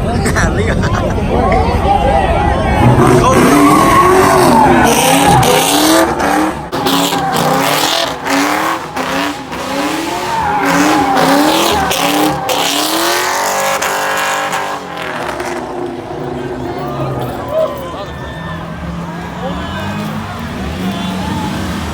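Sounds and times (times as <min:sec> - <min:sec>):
car engine revving: 0:02.5 - 0:21.9
tyres squealing: 0:06.7 - 0:21.9.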